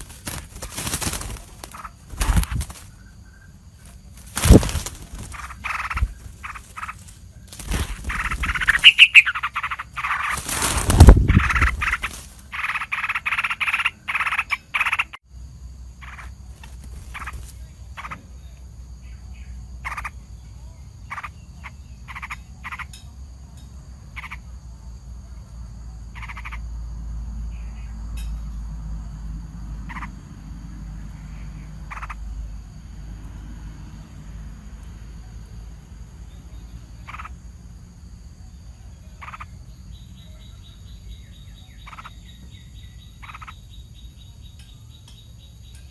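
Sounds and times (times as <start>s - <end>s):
bird harsh alarm calls: 0.0s - 15.2s, 16.0s - 16.3s, 17.0s - 18.3s, 19.3s - 20.2s, 21.0s - 22.9s, 24.2s - 24.4s, 26.2s - 26.7s, 29.8s - 30.2s, 31.1s - 32.3s, 37.0s - 37.4s, 39.2s - 44.2s.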